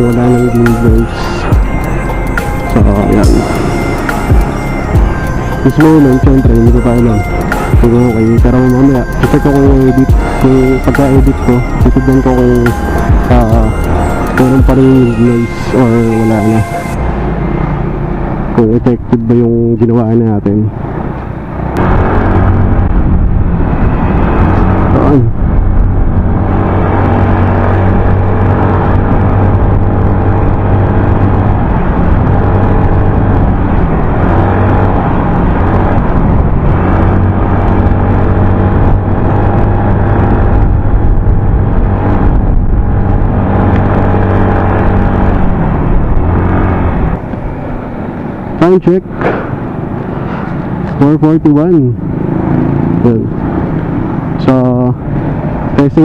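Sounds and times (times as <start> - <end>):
motorcycle engine running: 0.0 - 56.0
wind noise on microphone: 20.7 - 51.3.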